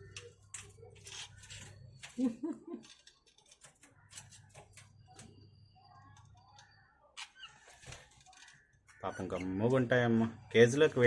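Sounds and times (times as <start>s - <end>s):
budgies chirping: 3.6s - 11.0s.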